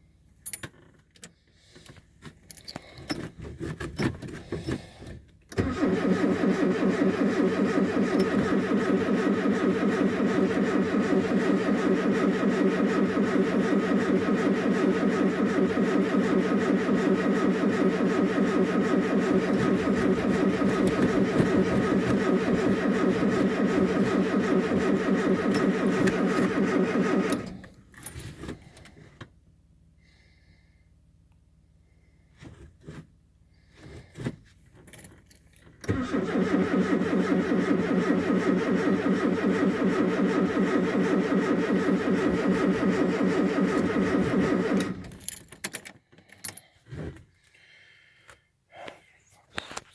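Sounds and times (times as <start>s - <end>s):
starter motor cranking engine: 5.5s - 29.0s, 35.8s - 45.4s.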